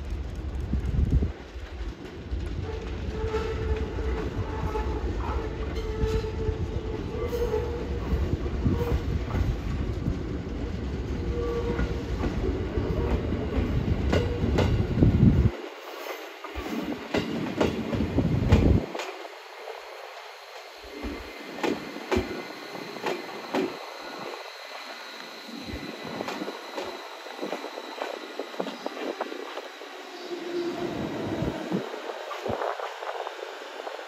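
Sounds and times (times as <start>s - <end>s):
low train rumble: 0.0s - 34.0s
train wheels clicking over rail joints: 9.2s - 15.2s, 16.0s - 19.3s, 20.5s - 25.4s.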